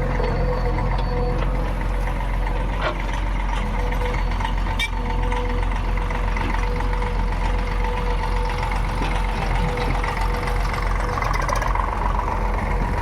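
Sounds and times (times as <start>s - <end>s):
diesel engine running: 0.0s - 13.0s
high engine whine: 0.0s - 13.0s.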